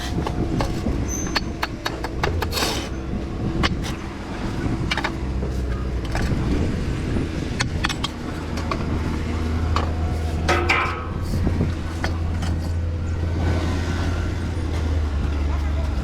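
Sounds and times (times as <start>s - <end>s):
engine running: 0.0s - 16.0s
sharp clacks and knocks: 0.2s - 2.7s, 7.5s - 12.8s.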